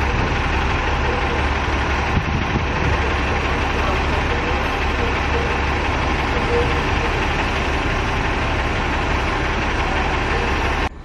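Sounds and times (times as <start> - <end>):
wind buffeting microphone: 0.0 - 6.2
bus engine idling: 0.0 - 11.0.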